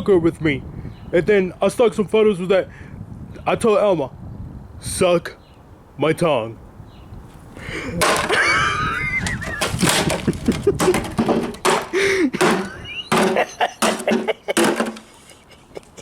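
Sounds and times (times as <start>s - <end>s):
loud knocks and clatter: 8.0s - 8.6s, 9.2s - 15.1s.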